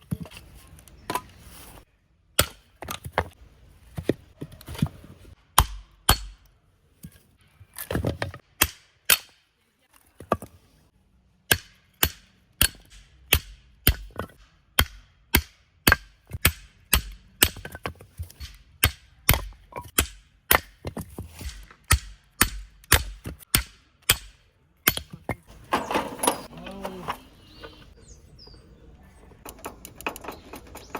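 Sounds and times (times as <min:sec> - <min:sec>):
hatchet chopping firewood: 0:02.4 - 0:10.6, 0:11.5 - 0:27.0.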